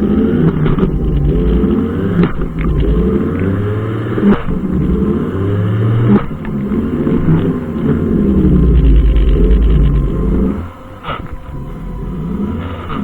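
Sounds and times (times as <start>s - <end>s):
brushcutter engine running: 0.0s - 13.0s
sharp clicks: 0.4s - 3.6s.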